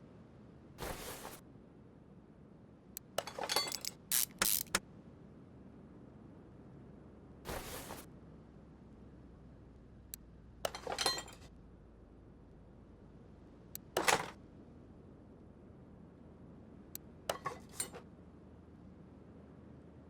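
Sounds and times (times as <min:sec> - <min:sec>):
metal tools clinking and rattling: 0:03.2 - 0:04.8, 0:10.7 - 0:11.5, 0:17.3 - 0:18.0.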